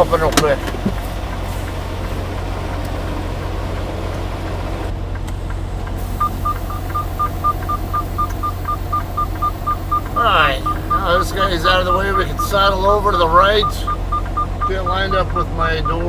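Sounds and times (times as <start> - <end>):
diesel truck engine idling: 0.0 - 16.0
rapid electronic warning beep: 6.2 - 16.0.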